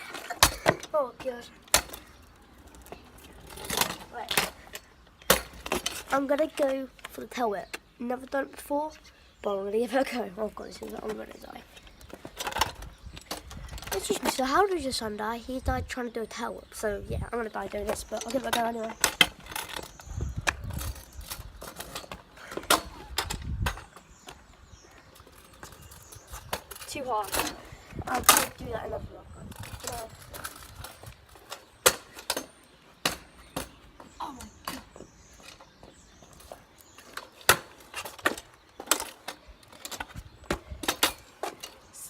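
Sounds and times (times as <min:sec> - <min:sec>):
kick scooter clattering on pavement: 0:10.0 - 0:15.2, 0:16.7 - 0:41.9.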